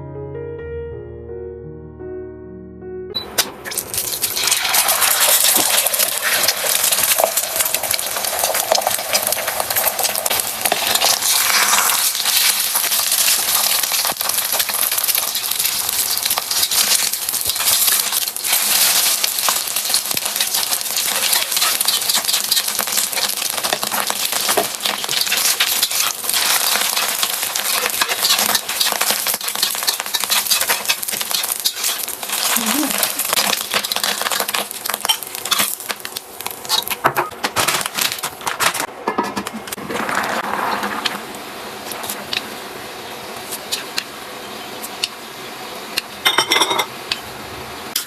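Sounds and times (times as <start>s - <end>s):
food sizzling in hot oil: 3.6s - 38.6s
stirring in a pan: 4.0s - 37.0s.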